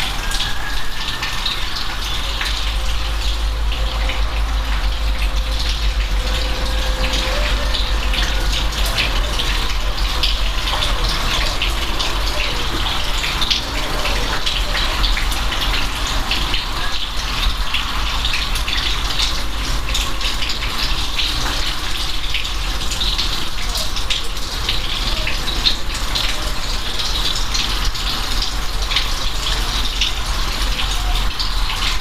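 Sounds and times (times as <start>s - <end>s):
steady rain falling: 0.0s - 32.0s
constant low rumble: 2.0s - 22.7s.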